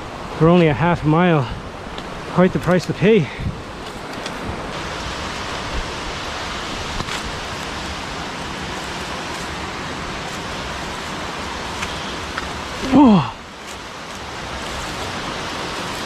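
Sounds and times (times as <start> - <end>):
waterfall rushing: 4.4 - 16.0.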